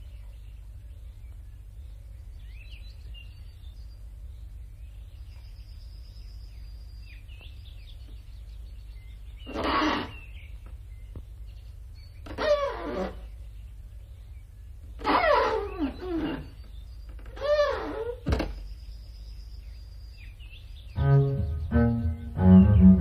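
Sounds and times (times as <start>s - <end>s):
birds chirping faintly: 0.0s - 23.0s
steady low hum: 18.5s - 23.0s
sound with falling pitch: 21.0s - 23.0s.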